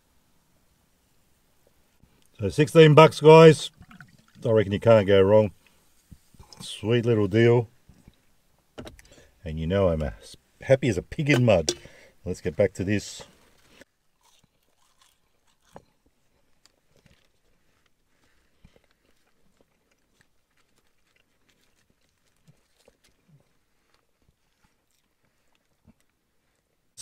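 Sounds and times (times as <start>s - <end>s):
soft clicks and crunches: 13.2s - 26.7s
man chewing food: 13.4s - 26.9s.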